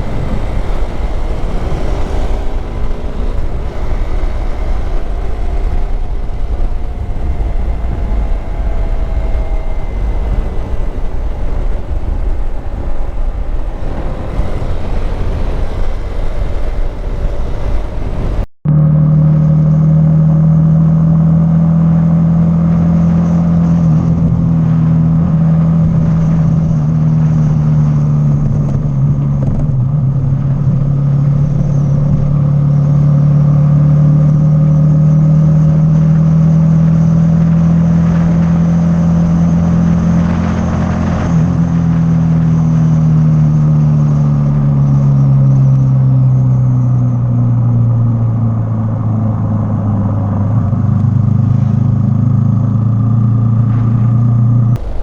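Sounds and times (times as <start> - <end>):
motorcycle engine running: 0.0 - 22.0, 47.9 - 55.0.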